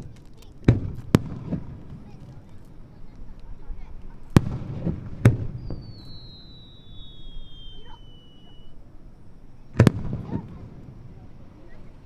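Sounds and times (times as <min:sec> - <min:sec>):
firework shells bursting: 0:00.0 - 0:08.9
high whistle sliding down: 0:05.6 - 0:08.8.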